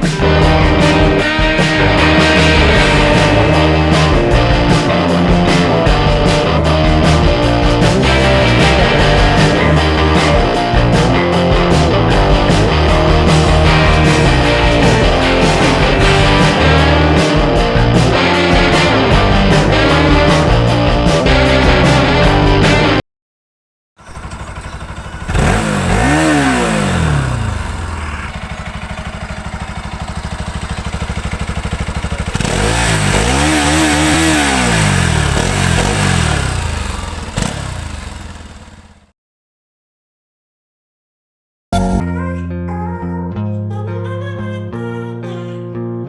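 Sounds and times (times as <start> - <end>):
motorcycle engine idling and revving: 0.0 - 23.0, 24.0 - 39.1
rock music with guitar: 0.0 - 23.0, 32.5 - 37.1.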